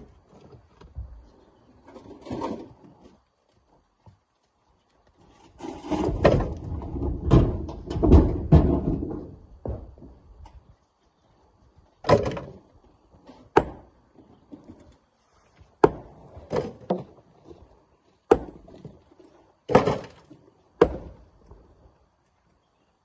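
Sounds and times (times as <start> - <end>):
heavy rock knocks and thuds: 6.0 - 10.2, 13.6 - 13.9, 18.3 - 19.0, 20.8 - 21.2.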